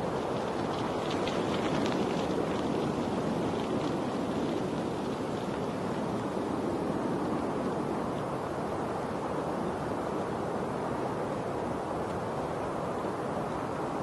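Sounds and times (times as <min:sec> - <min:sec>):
faint light ticks: 0:12.0 - 0:12.8.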